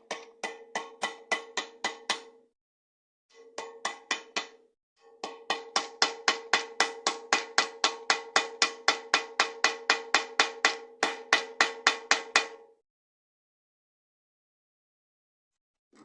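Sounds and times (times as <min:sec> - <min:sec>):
hammer tapping on metal: 0:00.0 - 0:02.4, 0:03.4 - 0:12.7.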